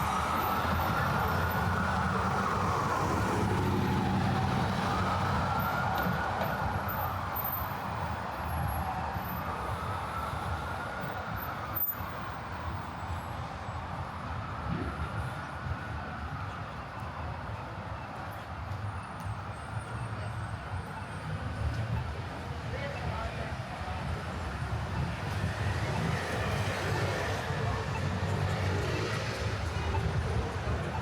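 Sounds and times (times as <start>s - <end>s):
emergency siren wailing: 0.0s - 7.9s, 8.5s - 11.7s
street traffic rumble: 0.0s - 31.0s.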